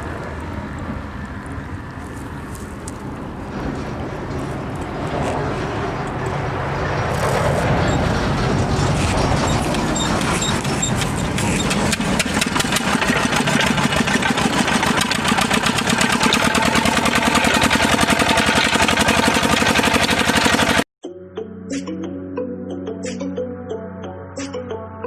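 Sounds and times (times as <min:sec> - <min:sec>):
engine with fast knocking beat: 0:09.0 - 0:20.9
music: 0:21.0 - 0:25.0.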